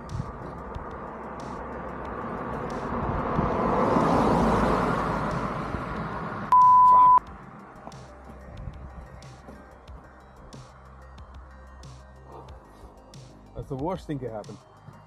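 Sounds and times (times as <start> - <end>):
vehicle passing: 0.0 - 6.6
high beep: 6.5 - 7.2.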